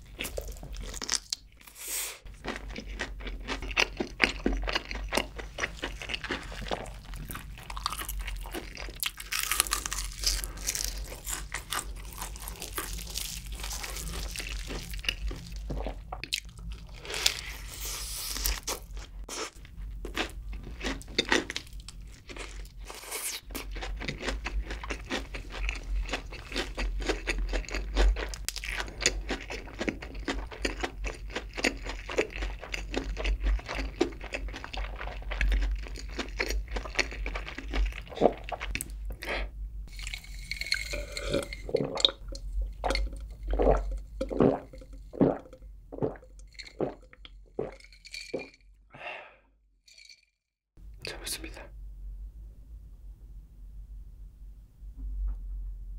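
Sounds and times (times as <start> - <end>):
wet chewing: 2.3 - 48.6
fried chicken crust crunching: 2.4 - 15.6, 20.1 - 38.9.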